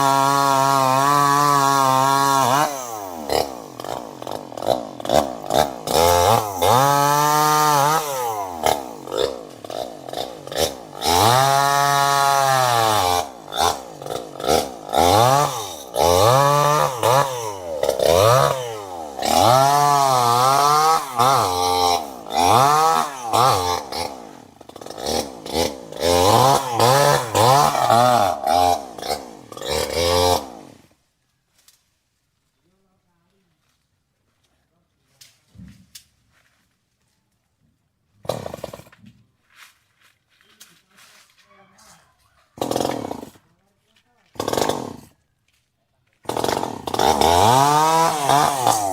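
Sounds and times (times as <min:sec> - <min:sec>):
chainsaw engine revving: 0:00.0 - 0:31.0, 0:38.2 - 0:39.0, 0:42.6 - 0:43.6, 0:44.2 - 0:45.2, 0:46.2 - 0:48.9.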